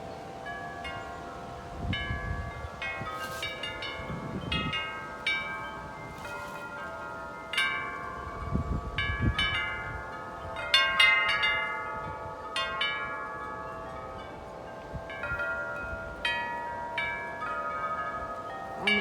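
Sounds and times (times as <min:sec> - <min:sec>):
metal wind chimes ringing: 0:00.0 - 0:19.0
wind rumble on microphone: 0:01.0 - 0:07.0, 0:07.8 - 0:19.0.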